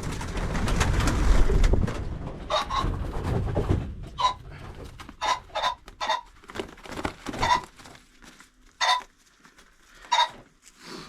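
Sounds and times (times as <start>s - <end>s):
pheasants calling: 2.5s - 3.0s, 4.1s - 6.4s, 7.3s - 7.9s, 8.7s - 10.5s
rustling and handling noise: 2.8s - 11.0s.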